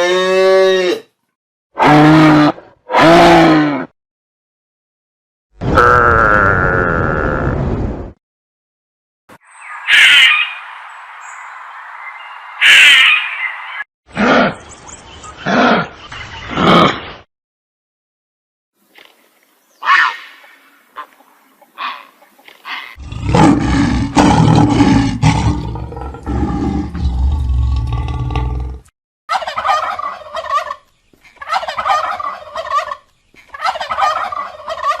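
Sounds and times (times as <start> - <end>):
turkey gobbling: 29.3 - 30.8, 31.4 - 35.0.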